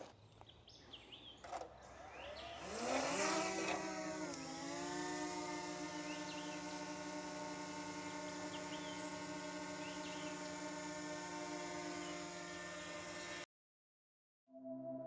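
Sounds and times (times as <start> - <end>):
drone motor and propeller hum: 1.4 - 13.4.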